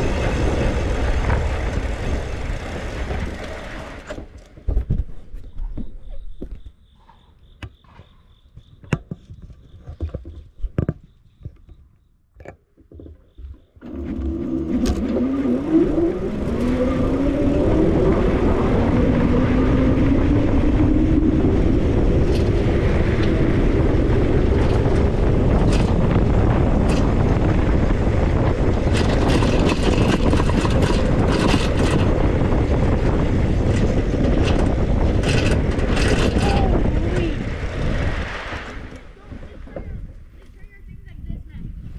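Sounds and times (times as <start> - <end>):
wind and rolling noise: 0.0 - 41.9
motor whine rising in pitch: 13.8 - 28.0.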